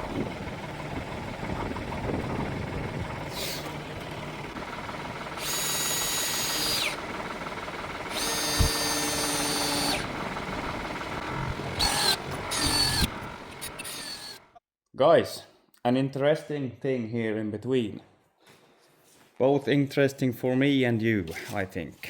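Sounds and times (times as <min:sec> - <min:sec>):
power drill whining: 0:03.3 - 0:14.5.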